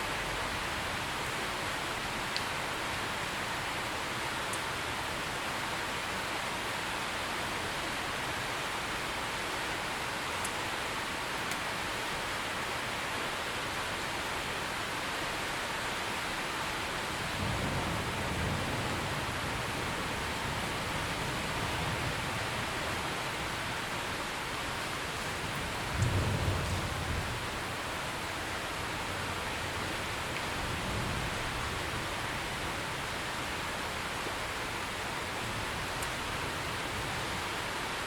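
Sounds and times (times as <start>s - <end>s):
heavy rain: 0.0s - 38.0s
thunder rumbling: 25.2s - 27.8s.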